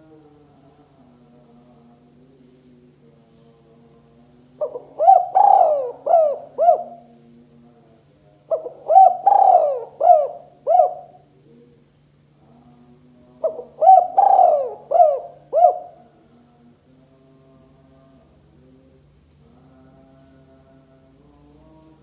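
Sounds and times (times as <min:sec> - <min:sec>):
dove cooing: 0:04.6 - 0:07.1, 0:08.5 - 0:11.2, 0:13.4 - 0:16.1.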